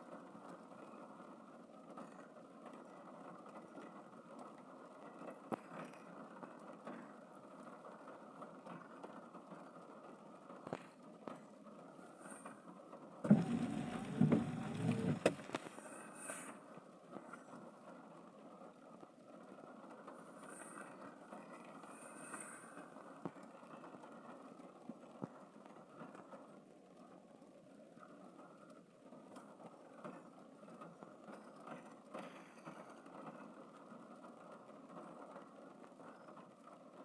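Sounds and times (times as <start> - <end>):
rain rushing: 13.3 - 15.6.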